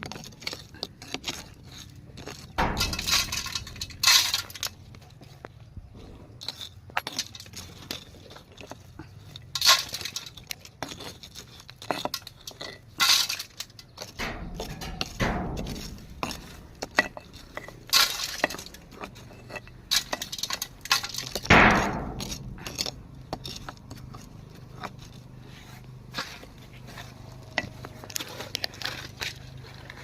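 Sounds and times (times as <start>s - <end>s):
hard objects clinking and clattering: 0.0s - 5.6s, 6.3s - 30.0s
ringing crashes: 2.6s - 4.6s, 14.2s - 18.8s, 20.0s - 23.3s.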